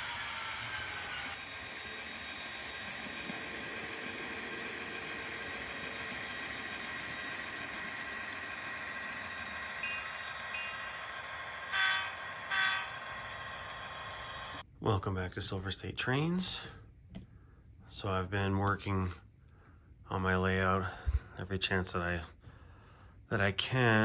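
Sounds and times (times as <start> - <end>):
train running with hiss and hum: 0.0 - 14.6.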